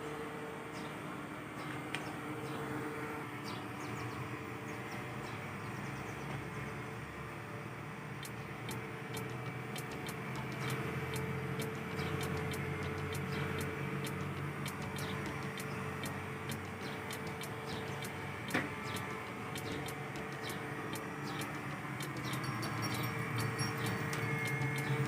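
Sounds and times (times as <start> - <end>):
sharp clicks and ticks: 8.2 - 25.0.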